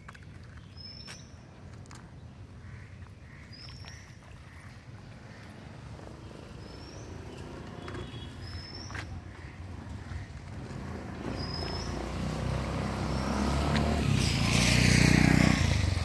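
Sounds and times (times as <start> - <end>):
low traffic rumble: 4.5 - 16.0.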